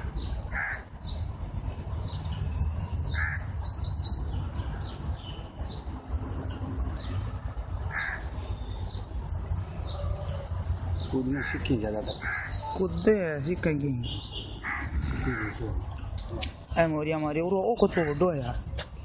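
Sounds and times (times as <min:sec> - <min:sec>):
birds calling: 0:00.0 - 0:19.0
high bird chirps: 0:11.9 - 0:13.2.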